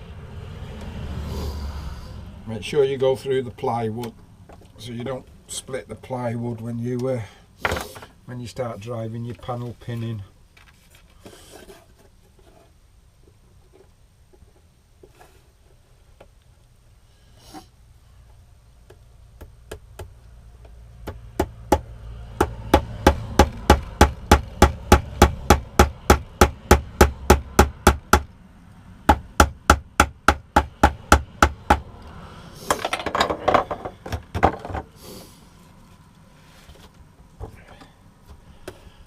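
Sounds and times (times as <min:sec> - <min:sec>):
rough noise: 0:00.0 - 0:03.4, 0:31.6 - 0:37.8
hammer hitting pins into plywood: 0:22.4 - 0:28.3, 0:29.1 - 0:31.8.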